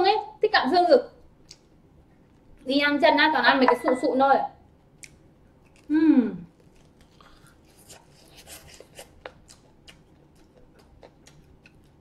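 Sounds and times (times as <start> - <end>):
chewing crispy fried chicken: 5.0 - 12.0.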